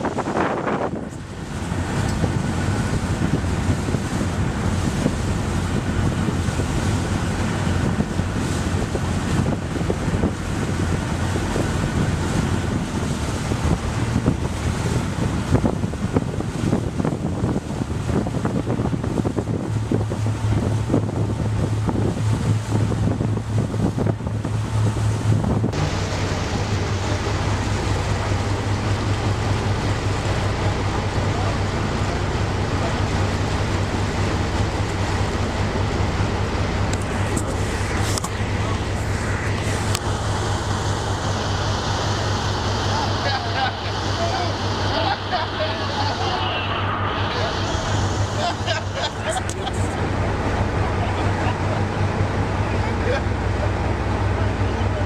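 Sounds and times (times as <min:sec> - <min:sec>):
ship rushing through sea: 0:00.0 - 0:55.0
steady low hum: 0:00.0 - 0:55.0
wind buffeting microphone: 0:00.0 - 0:55.0.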